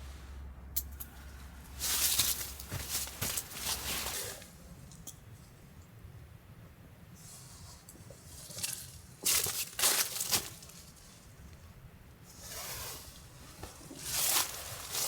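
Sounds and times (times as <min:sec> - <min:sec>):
rustling and crunching: 0:01.0 - 0:05.1, 0:07.4 - 0:15.0.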